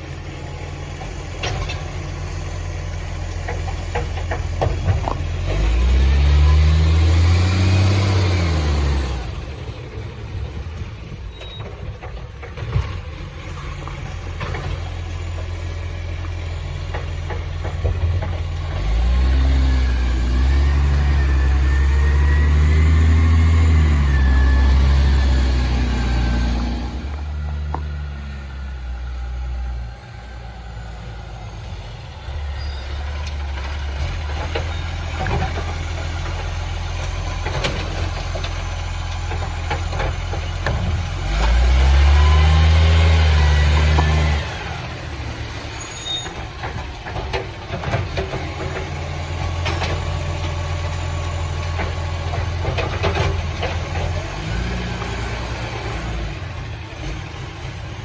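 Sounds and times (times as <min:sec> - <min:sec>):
garbage truck diesel engine: 0:00.0 - 0:58.0
clanks and knocks: 0:01.0 - 0:02.1, 0:03.2 - 0:05.7, 0:11.3 - 0:19.3, 0:33.3 - 0:41.8, 0:46.2 - 0:51.0, 0:51.6 - 0:55.2.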